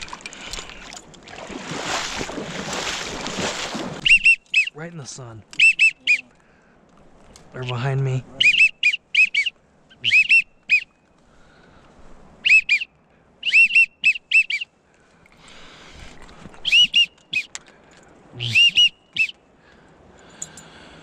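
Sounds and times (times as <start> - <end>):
duck whistle call: 4.0 - 4.7, 5.6 - 6.2, 8.4 - 10.9, 12.4 - 14.7, 16.6 - 17.6, 18.4 - 19.4.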